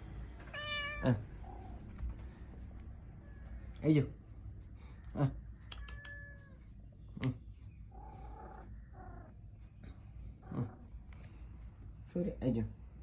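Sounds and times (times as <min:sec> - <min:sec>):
kitten meowing: 0:00.5 - 0:01.6, 0:05.7 - 0:06.6.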